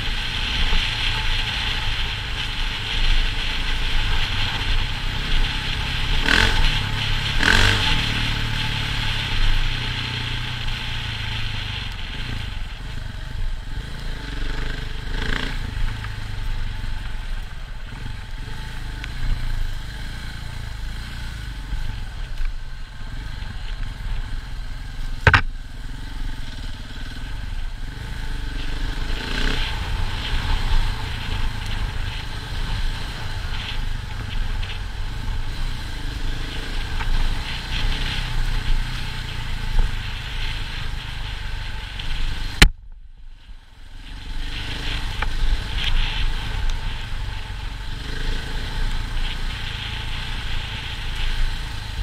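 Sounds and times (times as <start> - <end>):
dirt bike engine running: 0.0 - 52.0
sharp knock: 25.2 - 25.5.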